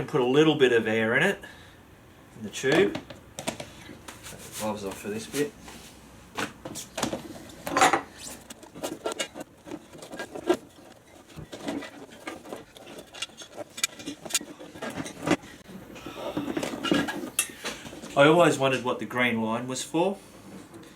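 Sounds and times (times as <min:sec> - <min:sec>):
rustling clatter: 0:06.7 - 0:18.2.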